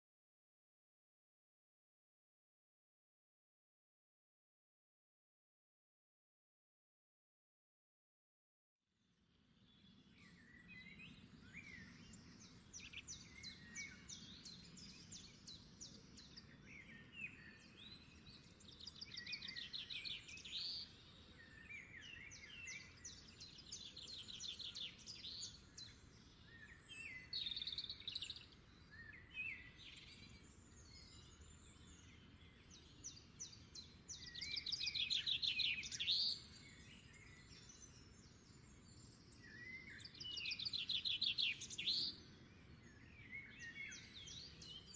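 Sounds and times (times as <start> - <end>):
small birds trilling and chirping: 9.3 - 44.9.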